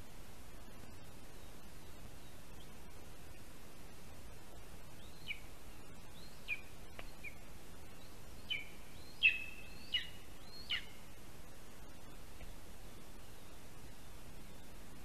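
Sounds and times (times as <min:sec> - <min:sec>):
bird calling with descending calls: 0:08.0 - 0:11.0.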